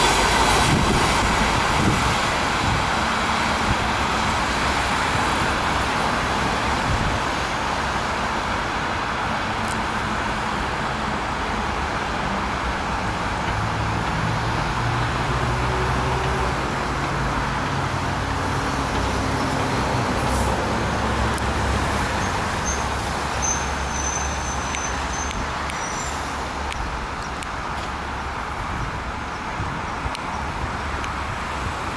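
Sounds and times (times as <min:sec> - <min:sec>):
train wheels rumbling on rail: 0:00.0 - 0:31.9.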